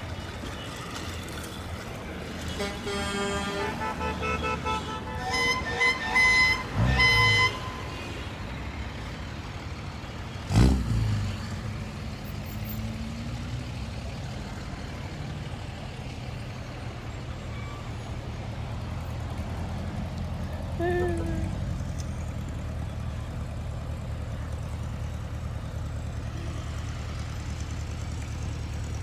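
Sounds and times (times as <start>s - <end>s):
traffic noise: 0.0s - 29.0s
vehicle horns honking: 2.4s - 8.4s.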